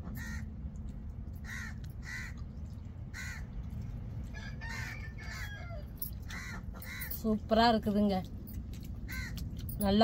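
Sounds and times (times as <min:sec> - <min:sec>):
steady low rumble: 0:00.0 - 0:10.0
birds calling: 0:01.4 - 0:03.8.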